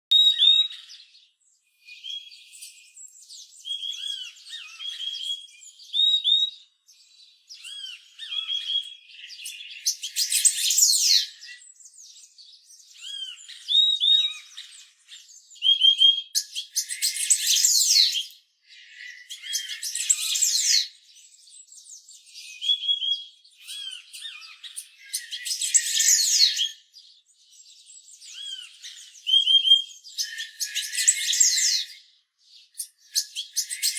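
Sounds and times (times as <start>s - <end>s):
bird whistled notes: 0.1s - 0.9s, 3.7s - 6.6s, 28.3s - 32.0s, 32.8s - 33.9s
high chattering bird song: 0.1s - 33.9s.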